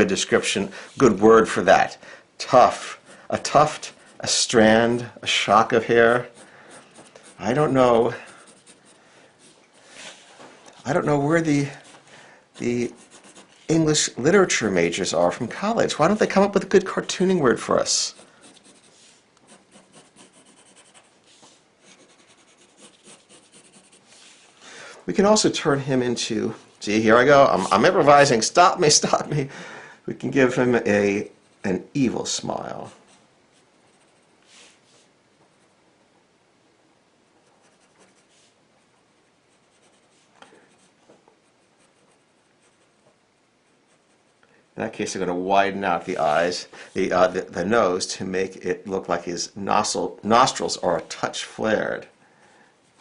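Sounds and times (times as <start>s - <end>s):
pencil scratching on paper: 6.1s - 9.6s, 12.6s - 13.7s, 18.1s - 24.2s, 32.8s - 34.3s, 37.4s - 44.4s.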